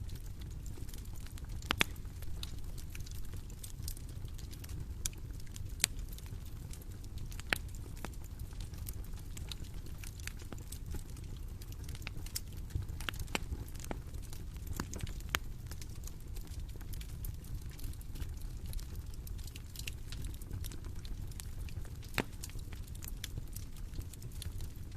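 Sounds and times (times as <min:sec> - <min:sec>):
bonfire crackling and popping: 0:00.0 - 0:24.9
low rumble of burning wood: 0:00.0 - 0:24.9.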